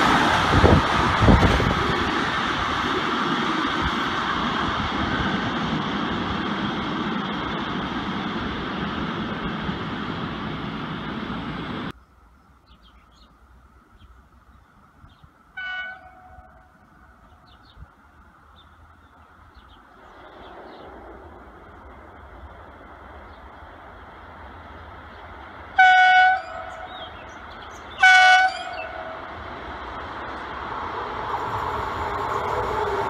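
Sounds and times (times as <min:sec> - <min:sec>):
train passing at speed: 0:00.0 - 0:12.4, 0:13.1 - 0:33.0
approaching train rumble: 0:00.0 - 0:33.0
train horn blast: 0:15.6 - 0:16.7, 0:25.8 - 0:27.0, 0:28.0 - 0:29.3.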